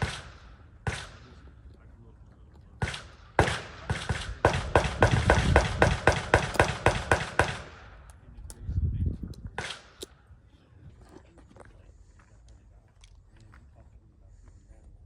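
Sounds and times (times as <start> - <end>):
gunshots with echo: 0.0 - 1.4, 2.8 - 8.1.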